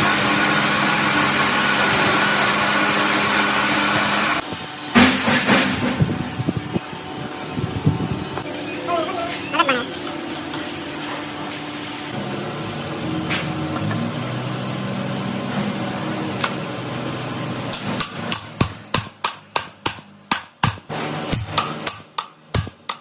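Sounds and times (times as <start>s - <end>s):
hammer striking metal: 5.0s - 6.1s, 17.7s - 23.0s.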